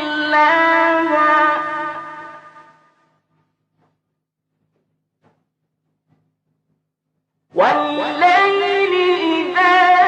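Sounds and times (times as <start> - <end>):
echo of reciting voice: 0.0 - 4.1, 7.2 - 10.0.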